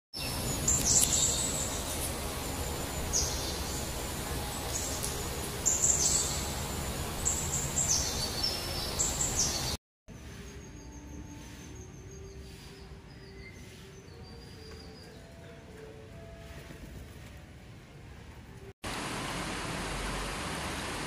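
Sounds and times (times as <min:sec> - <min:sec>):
small birds chirping: 0:00.2 - 0:15.8.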